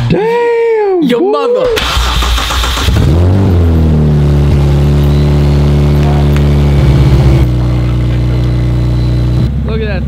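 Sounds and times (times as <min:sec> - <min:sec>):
car engine starting and idling: 0:01.6 - 0:10.0.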